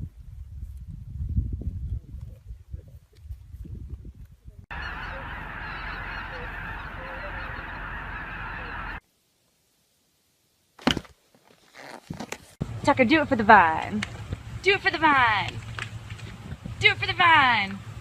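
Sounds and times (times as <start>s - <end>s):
flock of birds calling: 4.7s - 9.0s.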